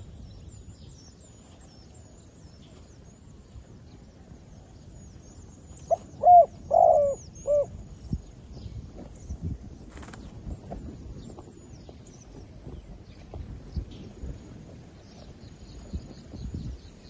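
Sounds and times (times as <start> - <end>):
dove cooing: 5.9 - 7.7.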